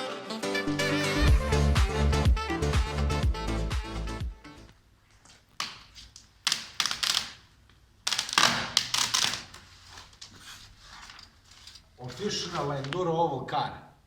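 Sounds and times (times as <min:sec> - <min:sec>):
vinyl film crackling: 0:05.4 - 0:10.4.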